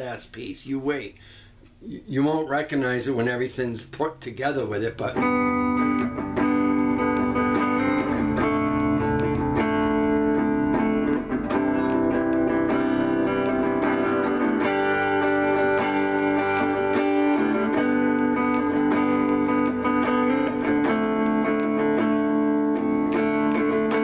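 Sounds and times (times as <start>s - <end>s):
electric guitar chords and arpeggios: 5.0s - 24.0s.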